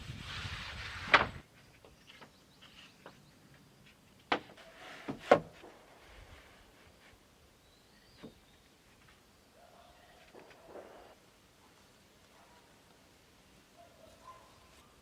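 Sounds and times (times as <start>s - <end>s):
rustling scrape: 0.0s - 3.0s, 4.6s - 7.3s.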